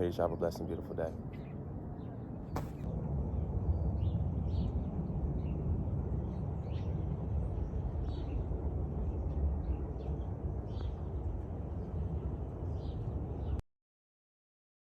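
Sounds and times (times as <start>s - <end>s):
steady low rumble: 0.0s - 13.6s
small birds chirping: 3.6s - 13.6s.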